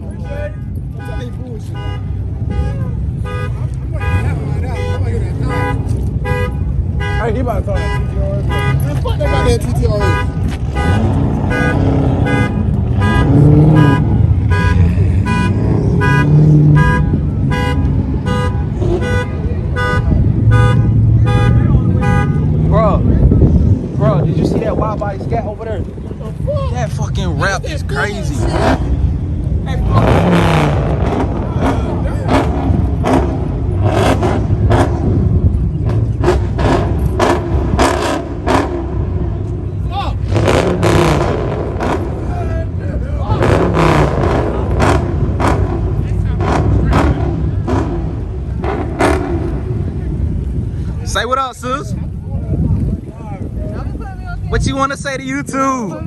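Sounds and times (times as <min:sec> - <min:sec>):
car engine exhaust rumble: 0:00.0 - 0:56.0
car alarm horn honks: 0:00.2 - 0:22.6.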